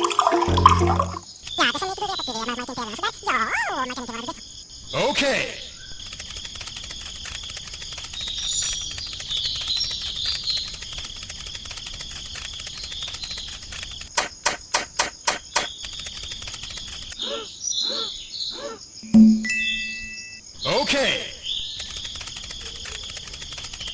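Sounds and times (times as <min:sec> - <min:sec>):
crickets and insects chirring: 0:00.0 - 0:19.1
sharp clicks: 0:14.1 - 0:17.2.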